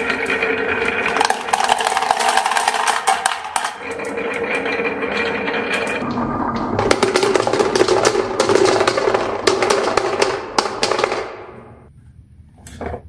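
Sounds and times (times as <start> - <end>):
marbles clacking on wooden track: 1.1 - 3.8, 6.9 - 11.4.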